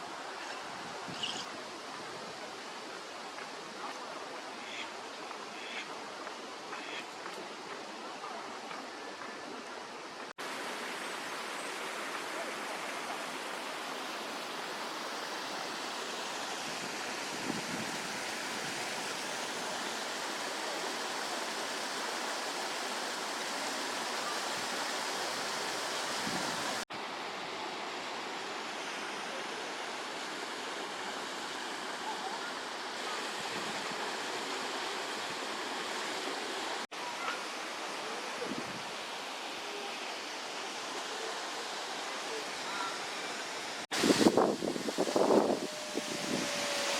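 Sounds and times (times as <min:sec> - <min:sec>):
running water rushing: 0:00.0 - 0:46.9.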